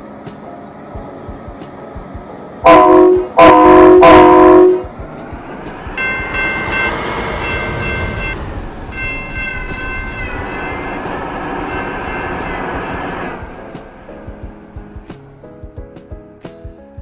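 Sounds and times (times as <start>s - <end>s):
miniature train rumbling: 0.0s - 15.8s
high-pitched squealing: 5.0s - 15.3s.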